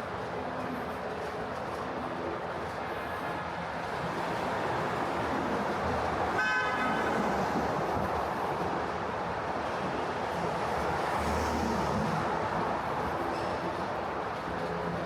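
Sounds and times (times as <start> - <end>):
city street traffic: 0.0 - 15.0.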